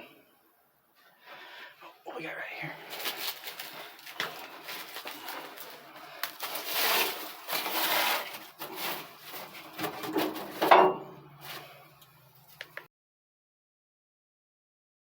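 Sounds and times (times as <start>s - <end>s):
dry material rustling: 2.7s - 12.6s.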